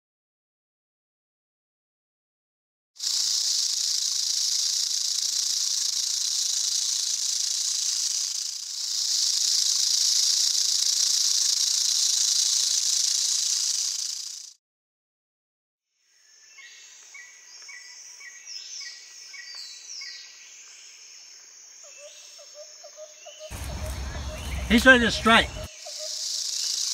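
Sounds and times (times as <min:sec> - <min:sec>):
rattlesnake rattle buzzing: 0:03.0 - 0:14.6, 0:23.5 - 0:26.9.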